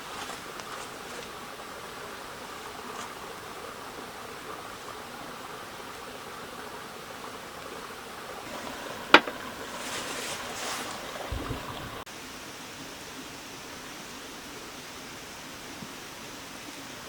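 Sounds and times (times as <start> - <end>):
light drizzle: 0.0 - 17.0
wind hissing: 8.4 - 12.1.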